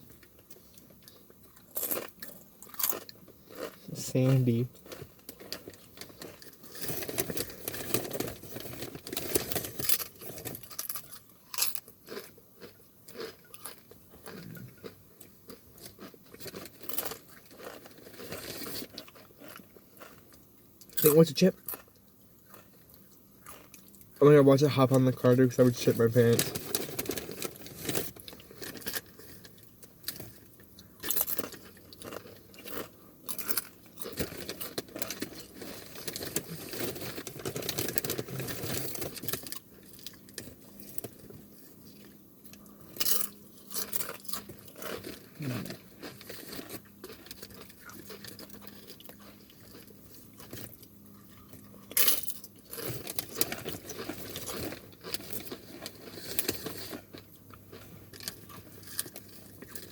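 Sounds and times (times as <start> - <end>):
soft chewing: 0.0 - 24.2, 25.8 - 59.9
chips crunching: 0.6 - 59.9.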